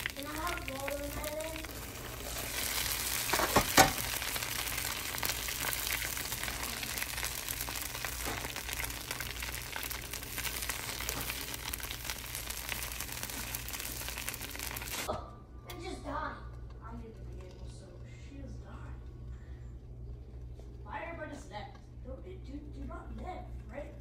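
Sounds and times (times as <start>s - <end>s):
batter sizzling and crackling: 0.0s - 15.1s.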